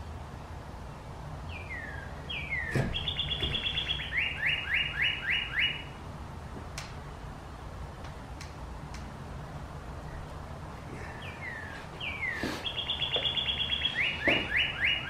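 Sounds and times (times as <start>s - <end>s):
songbird singing: 0.0s - 6.1s, 10.0s - 15.0s.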